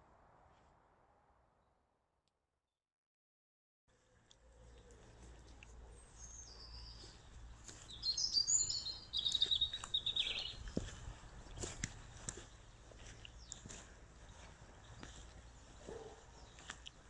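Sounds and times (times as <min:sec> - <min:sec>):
songbird warbling: 0:07.8 - 0:11.0.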